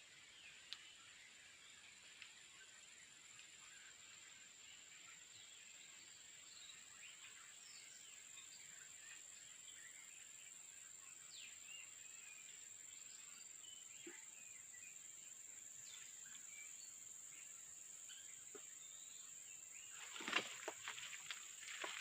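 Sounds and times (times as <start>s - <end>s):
insect drone: 0.0s - 22.0s
rustles and knocks: 20.0s - 22.0s.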